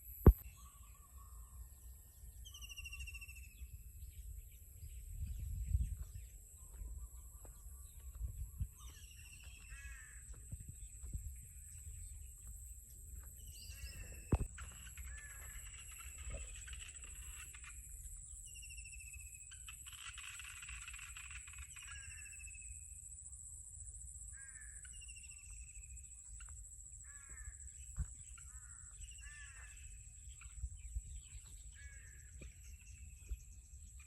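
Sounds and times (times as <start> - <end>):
sharp thumps: 0.2 - 0.4, 14.2 - 14.6
high drone of insects: 2.4 - 34.0
birds calling: 5.9 - 22.4.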